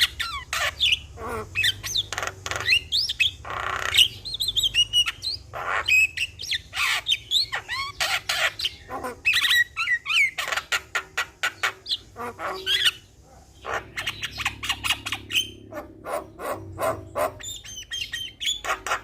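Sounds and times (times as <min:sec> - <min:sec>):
bird harsh squawks: 0:00.0 - 0:19.0
bird whistling: 0:16.5 - 0:19.0.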